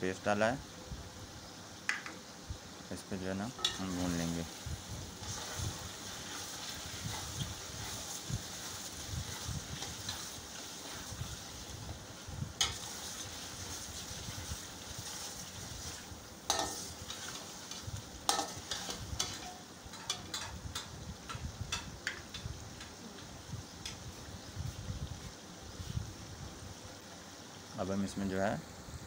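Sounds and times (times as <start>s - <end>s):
meat sizzling in oil: 0.0s - 29.0s
metal spoon scraping and knocking pan: 3.6s - 4.2s, 12.6s - 13.0s, 16.5s - 22.9s.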